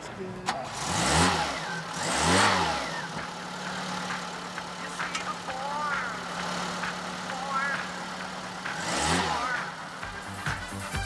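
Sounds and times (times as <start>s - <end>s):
car engine revving and idling: 0.0s - 11.0s.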